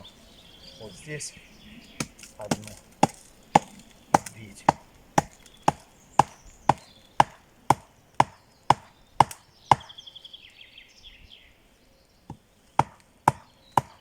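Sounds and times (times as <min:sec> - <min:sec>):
bird trilling: 0:00.0 - 0:12.3
axe chopping wood: 0:02.0 - 0:09.9, 0:12.3 - 0:14.0.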